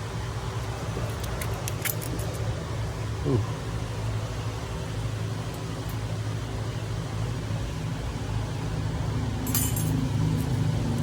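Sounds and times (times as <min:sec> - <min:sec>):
vehicle engine idling: 0:00.0 - 0:11.0
short metallic clink: 0:09.5 - 0:10.0.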